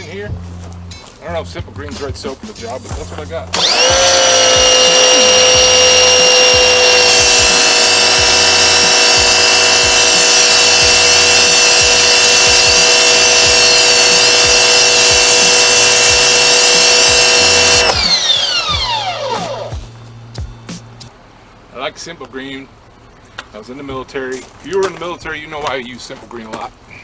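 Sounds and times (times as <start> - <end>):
pressure washer motor whine: 3.5 - 19.8.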